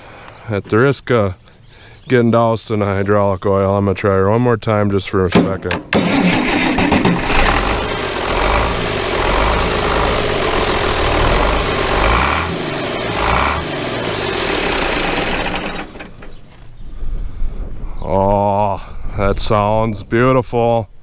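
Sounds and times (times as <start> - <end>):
diesel engine running: 6.0 - 16.6.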